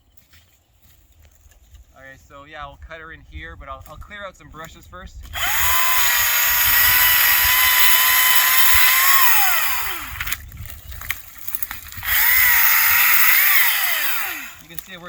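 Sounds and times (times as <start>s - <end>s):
battery chainsaw whining: 5.3s - 15.0s.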